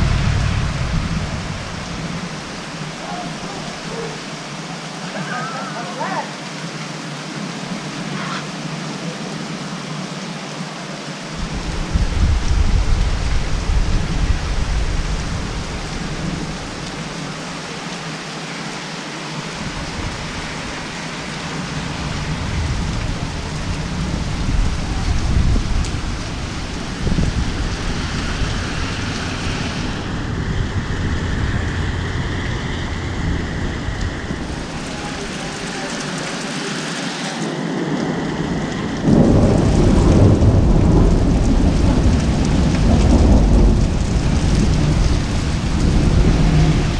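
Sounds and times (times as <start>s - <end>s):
low rumbling thunder: 0.0s - 3.9s, 11.4s - 16.9s, 21.4s - 29.1s, 37.7s - 46.9s
heavy rain falling: 0.0s - 46.9s.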